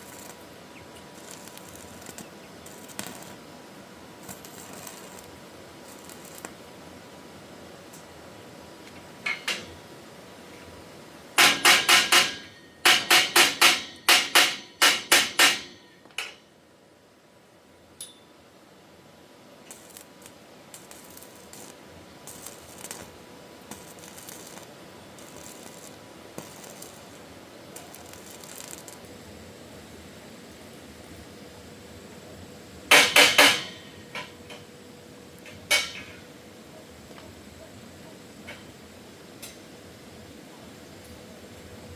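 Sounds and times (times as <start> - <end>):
hammer striking metal: 11.4 - 16.4, 32.9 - 34.3
metal clanking on metal: 35.7 - 36.2.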